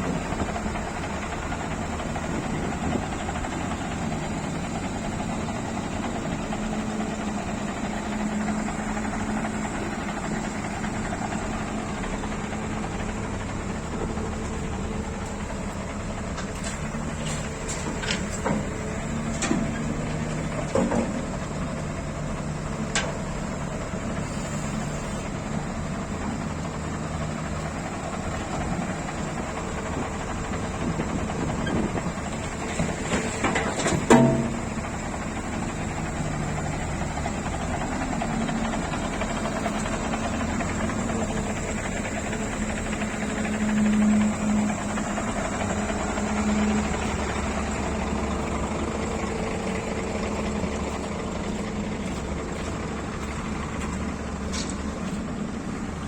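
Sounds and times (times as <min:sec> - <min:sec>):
truck diesel engine running: 0:00.0 - 0:56.0.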